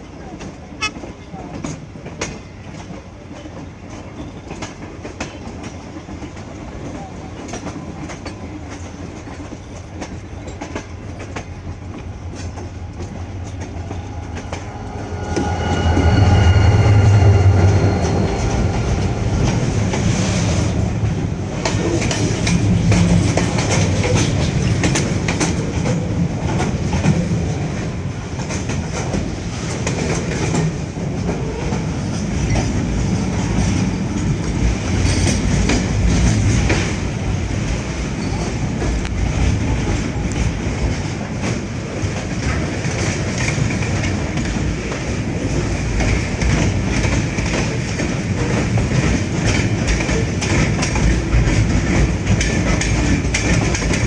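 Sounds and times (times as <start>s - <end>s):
train rumble: 0.0s - 54.0s
train horn tone: 10.0s - 24.6s
wheels clattering over rail joints: 32.2s - 54.0s.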